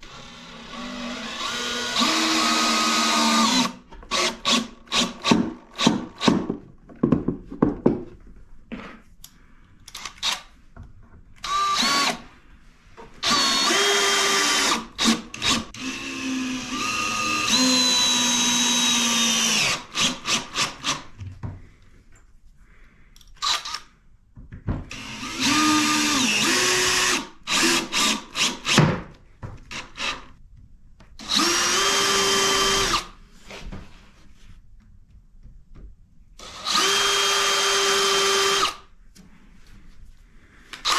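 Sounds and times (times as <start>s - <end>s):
cordless drill running in bursts: 0.0s - 5.2s, 11.5s - 12.2s, 13.2s - 20.6s, 24.9s - 28.5s, 31.2s - 33.1s, 36.4s - 38.8s.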